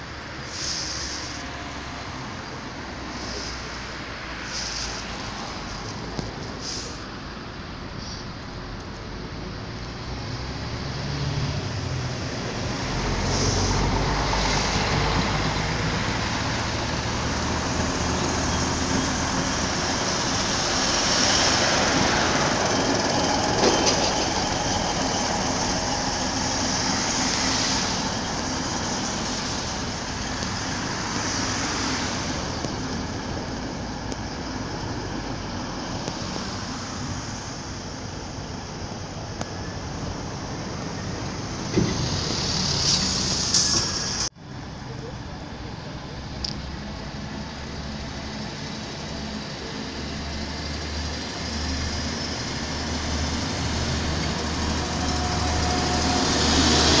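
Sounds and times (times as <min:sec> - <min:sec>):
train engine drone: 0:00.0 - 0:57.0
wheels rumbling on rail: 0:00.0 - 0:57.0.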